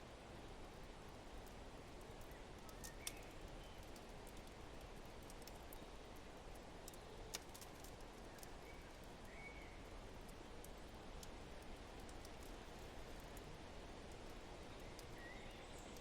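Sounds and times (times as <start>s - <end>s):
wood fire crackling and popping: 1.4s - 9.2s, 10.2s - 15.1s.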